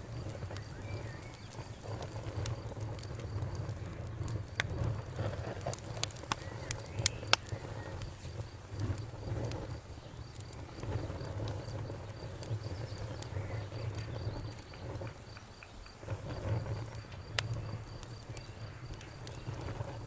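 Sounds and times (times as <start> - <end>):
campfire crackling: 0.0 - 20.0
cricket chirping: 0.0 - 20.0
low rumble of burning wood: 0.0 - 20.0
sharp pops of fire: 0.0 - 20.0.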